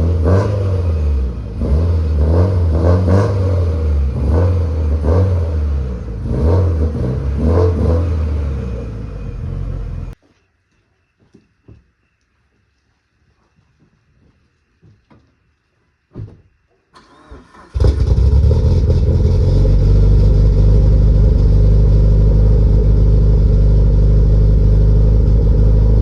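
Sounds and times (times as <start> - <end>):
car engine starting and idling: 0.0 - 10.2, 16.9 - 26.0
thump: 16.1 - 16.5.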